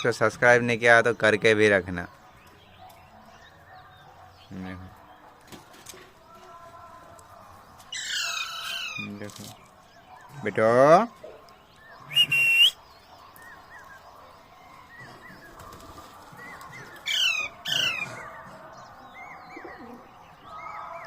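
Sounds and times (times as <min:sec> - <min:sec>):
parakeet screeching: 0:07.9 - 0:09.1
parakeet squawking: 0:08.0 - 0:09.1.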